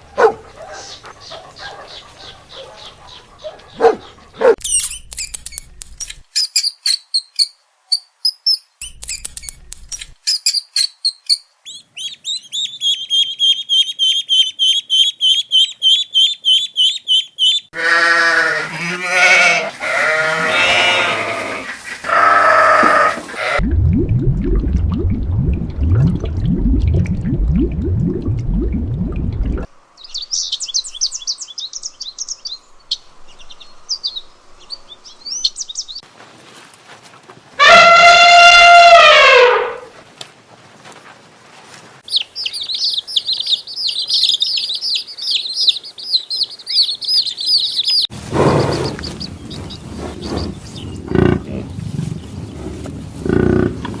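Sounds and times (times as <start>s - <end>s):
high bird chirps: 4.6s - 17.7s, 42.1s - 49.8s.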